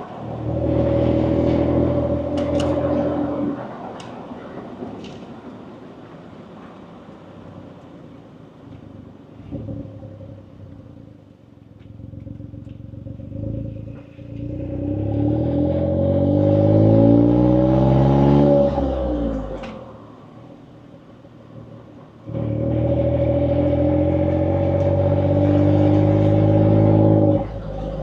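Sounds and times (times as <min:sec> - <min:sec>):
car engine revving under acceleration: 0:00.0 - 0:03.6, 0:11.9 - 0:19.8, 0:21.6 - 0:28.0.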